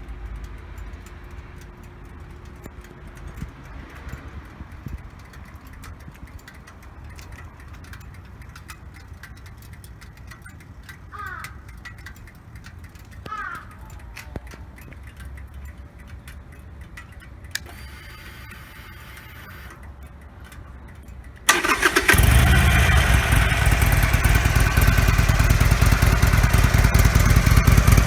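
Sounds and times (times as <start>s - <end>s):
motorcycle engine idling: 21.5s - 28.0s.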